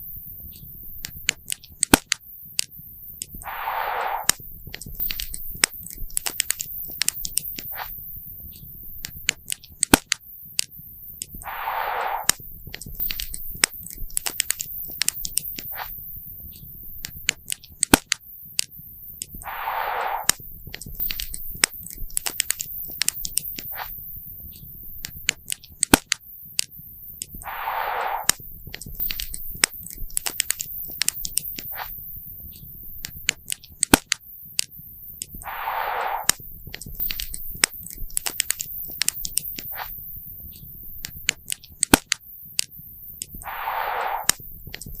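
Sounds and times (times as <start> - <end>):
short hissing rush: 3.4 - 4.4, 11.4 - 12.4, 19.4 - 20.4, 27.4 - 28.4, 35.4 - 36.4, 43.4 - 44.5.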